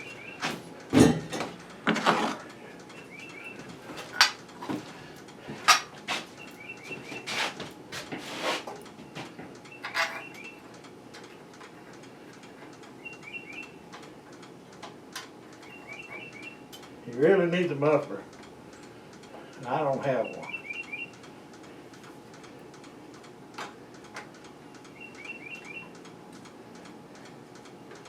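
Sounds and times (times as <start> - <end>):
bird chirping: 0.0 - 0.4, 2.9 - 3.7, 6.4 - 7.3, 9.7 - 10.6, 13.0 - 13.8, 15.6 - 16.7, 20.2 - 21.2, 24.9 - 26.0
sharp knocks and metallic clinks: 0.0 - 2.2, 9.1 - 10.6.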